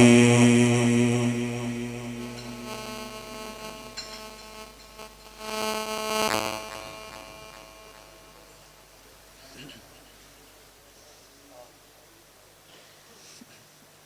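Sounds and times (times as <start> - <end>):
steady tones: 0.0 - 9.1
electrical hum from sound system: 0.0 - 12.2.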